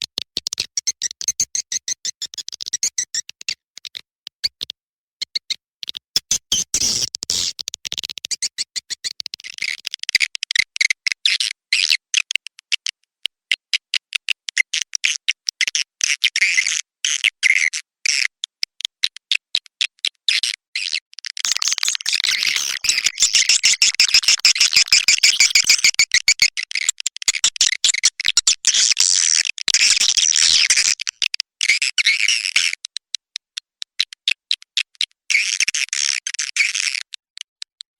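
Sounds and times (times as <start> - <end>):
swiftlet twittering chirps: 21.5 - 26.5.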